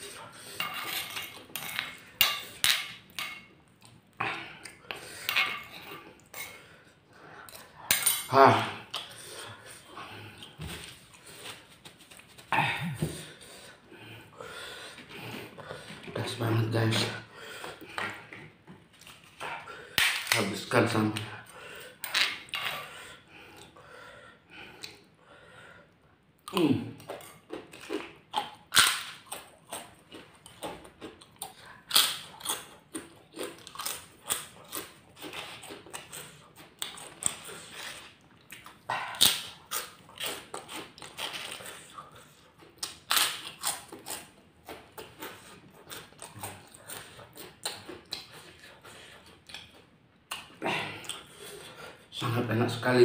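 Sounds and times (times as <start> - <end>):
chewing crispy crackers: 26.4 - 52.1.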